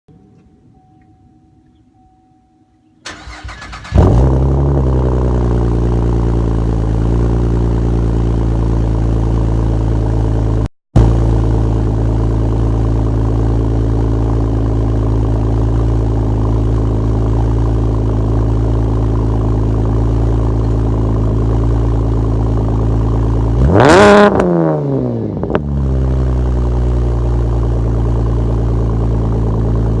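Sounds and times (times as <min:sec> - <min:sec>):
car engine cranking: 0:03.0 - 0:05.6
car engine idling and revving: 0:03.1 - 0:30.0.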